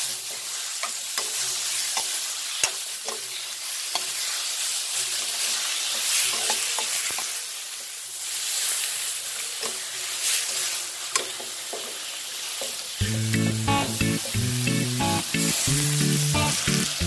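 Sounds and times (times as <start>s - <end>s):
chicken frying in a wok: 0.0s - 17.0s
music: 13.0s - 17.0s.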